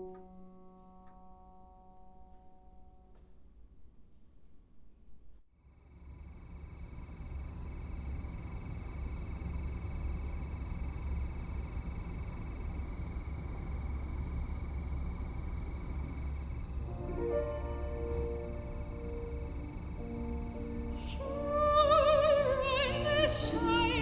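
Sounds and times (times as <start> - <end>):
insects trilling: 5.8 - 24.0.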